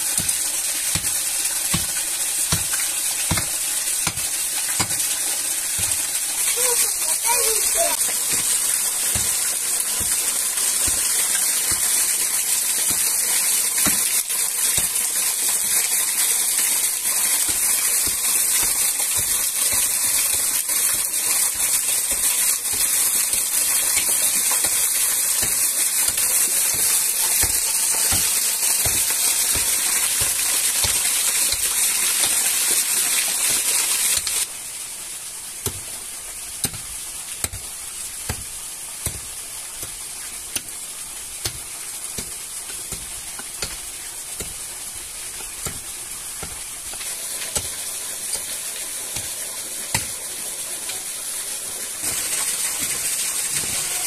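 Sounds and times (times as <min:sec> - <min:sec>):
food sizzling in hot oil: 0:00.0 - 0:54.0.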